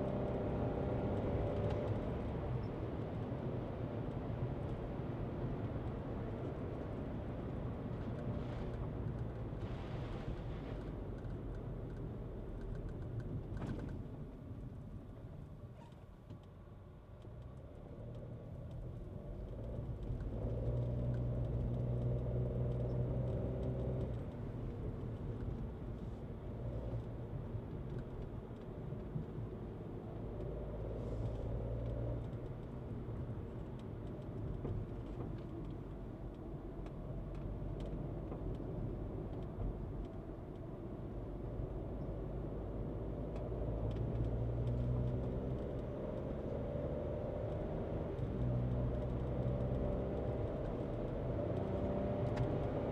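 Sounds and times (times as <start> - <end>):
road noise: 0.0 - 52.9
car engine: 40.7 - 52.9.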